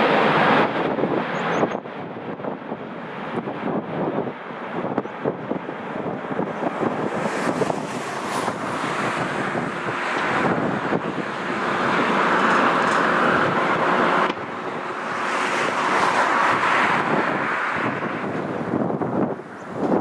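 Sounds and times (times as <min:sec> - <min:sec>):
jet engines roaring: 0:00.0 - 0:20.0
wind buffeting microphone: 0:00.0 - 0:20.0.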